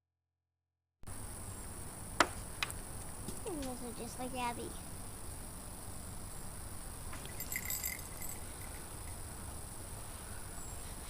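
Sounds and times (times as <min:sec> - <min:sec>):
light metallic jingle: 0:07.1 - 0:09.5.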